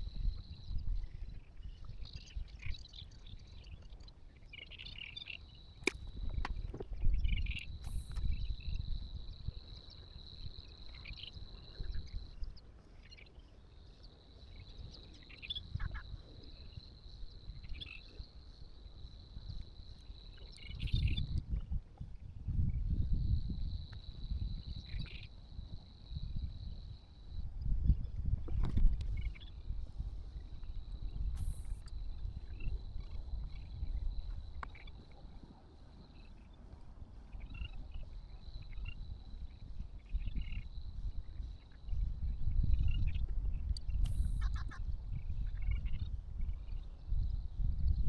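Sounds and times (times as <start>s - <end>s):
wind rumble on microphone: 0.0s - 4.9s, 5.8s - 48.0s
bird-like chirps: 42.8s - 46.1s.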